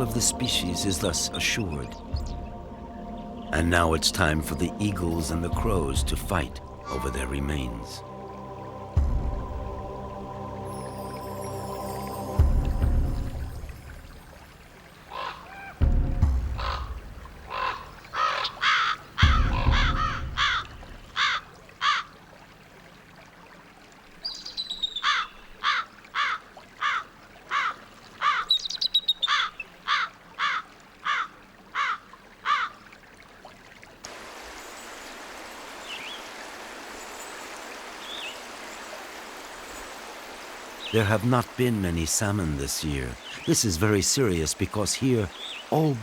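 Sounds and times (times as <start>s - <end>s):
river rushing: 0.0s - 15.8s, 34.0s - 46.0s
crows cawing: 15.1s - 15.9s, 16.5s - 22.2s, 25.0s - 28.6s, 29.2s - 32.8s.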